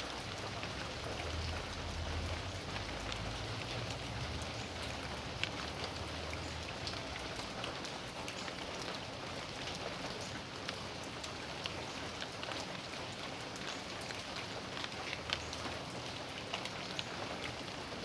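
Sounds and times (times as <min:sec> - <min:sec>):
raindrops ticking on surfaces: 0:00.0 - 0:18.0
steady rain falling: 0:00.0 - 0:18.0.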